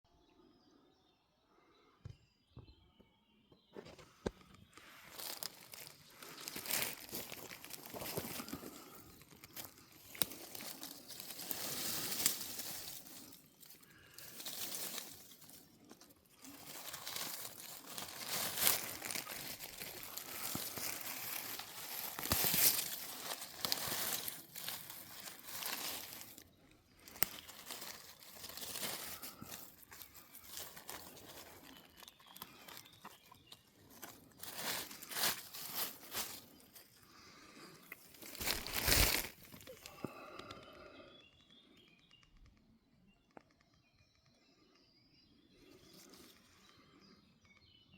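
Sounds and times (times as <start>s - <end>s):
dry leaves rustling and crackling: 4.8s - 40.4s.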